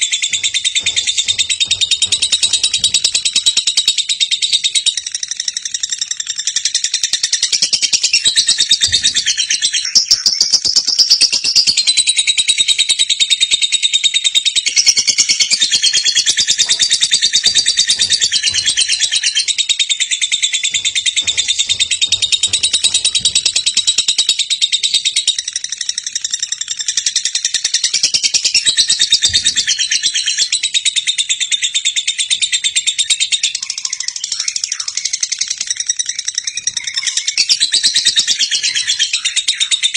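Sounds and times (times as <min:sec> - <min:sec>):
lovebird chattering: 0:14.6 - 0:30.9.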